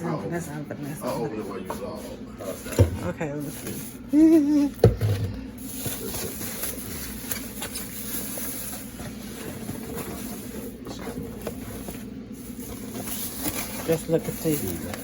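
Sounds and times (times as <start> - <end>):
room hum: 0.0 - 15.0
food container rustling and clicking: 5.2 - 15.0.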